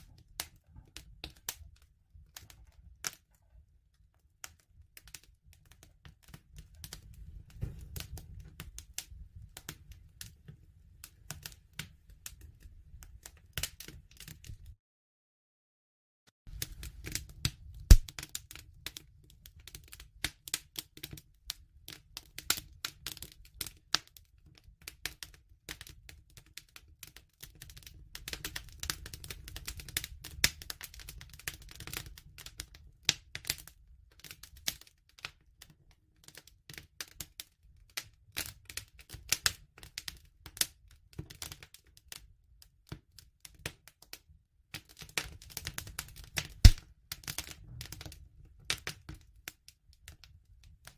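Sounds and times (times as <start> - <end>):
wood crackling and popping: 4.0 - 14.7, 16.5 - 35.7, 44.7 - 50.9
low rumble of flame: 6.1 - 13.3, 16.5 - 18.2.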